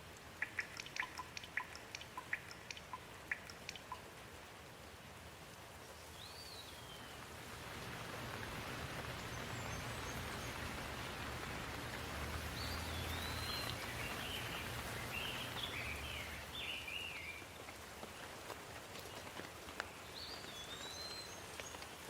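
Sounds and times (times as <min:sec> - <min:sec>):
steady rainfall: 0:00.0 - 0:22.0
bird chirping: 0:00.4 - 0:04.0, 0:09.0 - 0:11.4, 0:12.0 - 0:17.4.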